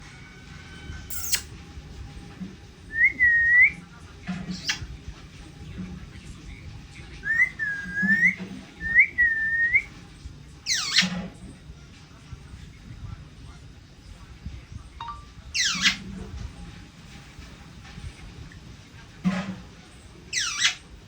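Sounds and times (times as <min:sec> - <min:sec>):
parrot whistling: 0:01.1 - 0:01.5, 0:02.9 - 0:03.8, 0:07.2 - 0:09.9, 0:15.0 - 0:16.0, 0:20.3 - 0:20.8
harsh noisy parrot sounds: 0:04.5 - 0:04.9, 0:07.2 - 0:09.9, 0:10.6 - 0:11.2, 0:15.6 - 0:16.1, 0:20.3 - 0:21.0.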